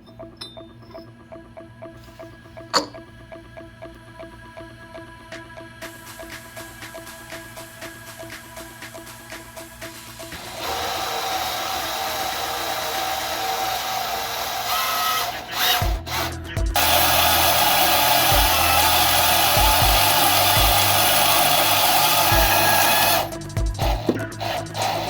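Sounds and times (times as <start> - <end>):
background music with kick drum: 4.6 - 11.0, 15.6 - 25.0
power tool running: 9.9 - 25.0.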